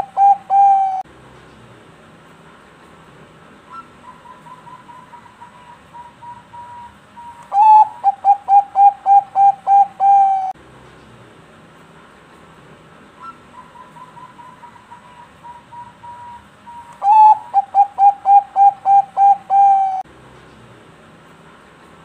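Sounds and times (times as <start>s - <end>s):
dove cooing: 0.0s - 1.0s, 3.7s - 10.6s, 13.2s - 20.0s.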